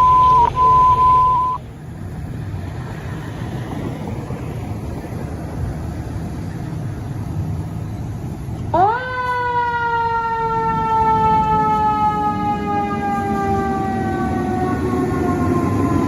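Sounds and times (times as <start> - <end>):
siren rising and winding down: 0.0 - 1.6
fire engine rumbling: 0.0 - 16.0.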